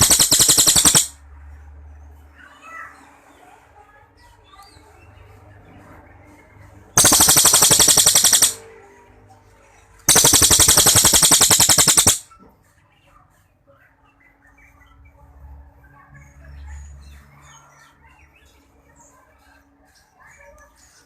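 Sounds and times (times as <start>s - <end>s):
songbird rattling trills: 0.0s - 1.1s, 7.0s - 8.6s, 10.1s - 12.2s.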